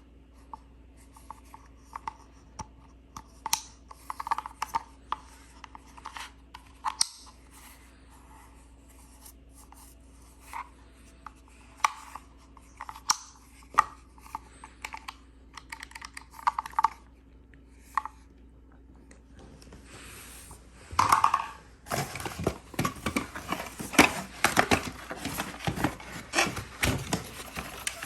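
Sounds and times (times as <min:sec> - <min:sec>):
faint steady hum: 0:00.0 - 0:28.0
packaging clicks scrapes and rustles: 0:21.9 - 0:28.0.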